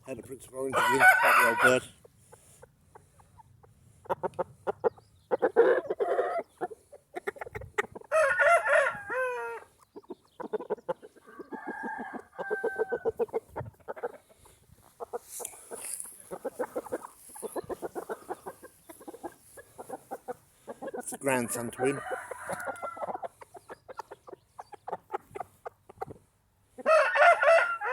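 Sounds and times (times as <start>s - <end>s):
gamecocks clucking: 0.1s - 27.9s
rooster crowing loudly: 0.7s - 1.8s, 8.1s - 9.7s, 11.6s - 13.1s, 21.5s - 23.1s, 26.8s - 27.9s.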